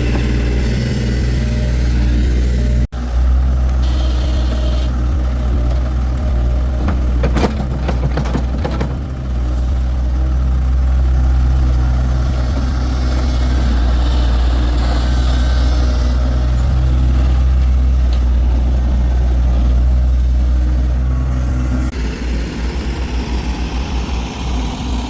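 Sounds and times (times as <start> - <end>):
engine idling: 0.0 - 25.0
knocks and clatter: 5.4 - 9.9.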